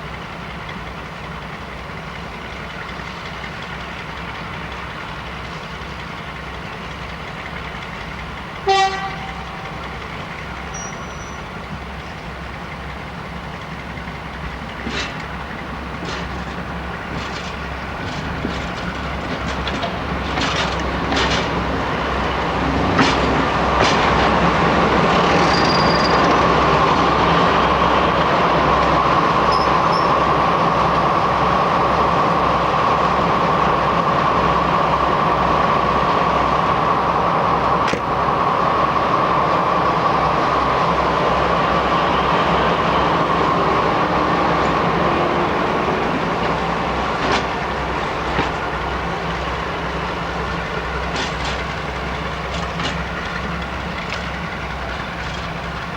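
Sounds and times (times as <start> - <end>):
diesel locomotive throbbing: 0.0 - 55.9
train wheels clattering: 0.4 - 55.9
train horn blast: 8.6 - 9.9.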